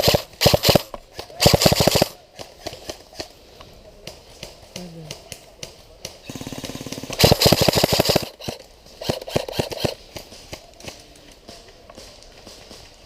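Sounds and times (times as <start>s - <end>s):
airsoft guns firing: 0.0s - 3.3s, 6.2s - 11.0s.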